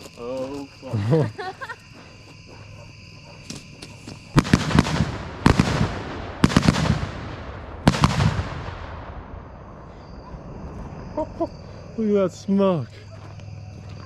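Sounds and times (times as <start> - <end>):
fireworks exploding: 3.5 - 11.1.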